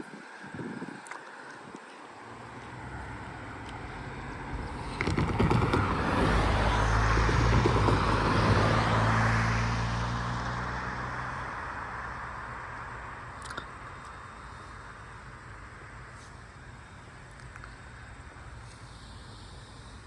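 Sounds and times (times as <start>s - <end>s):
diesel train engine drone: 1.4s - 20.0s
train rolling noise: 4.2s - 9.1s
train wheel clicks: 4.7s - 8.8s.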